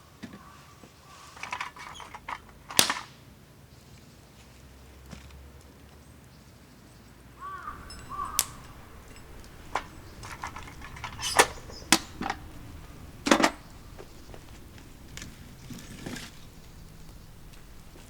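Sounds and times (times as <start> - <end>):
hard objects clicking and knocking: 1.4 - 3.1, 7.7 - 18.0.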